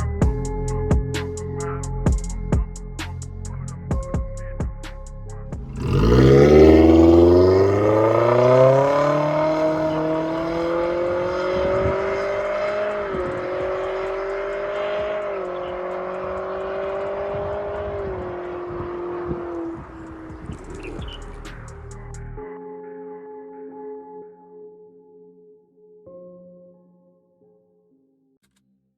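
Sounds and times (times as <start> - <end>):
car exhaust accelerating hard: 5.6 - 22.3.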